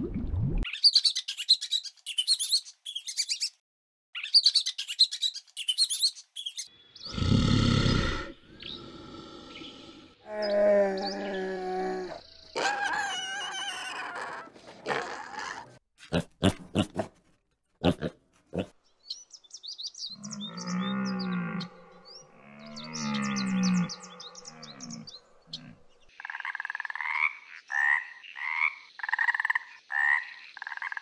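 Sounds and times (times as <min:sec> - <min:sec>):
bird chirps: 0:00.7 - 0:03.6, 0:04.2 - 0:07.2, 0:18.9 - 0:26.1
long low moaning calls: 0:08.6 - 0:12.3, 0:20.2 - 0:26.0
piglet grunting: 0:12.6 - 0:17.2, 0:17.8 - 0:18.8
tree frog croaking: 0:22.6 - 0:31.0.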